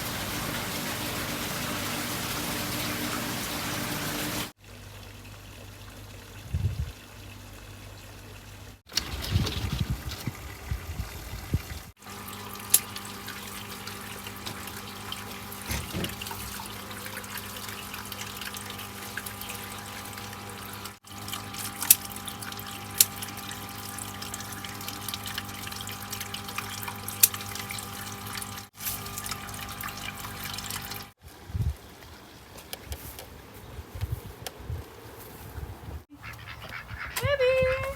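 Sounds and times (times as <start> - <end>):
water running and trickling: 0.0 - 35.7.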